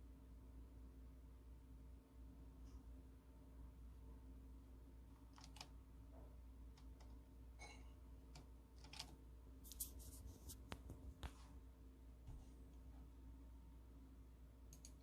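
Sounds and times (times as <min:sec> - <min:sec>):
low room hum: 0:00.0 - 0:15.0
faint clicks and taps: 0:05.2 - 0:11.5.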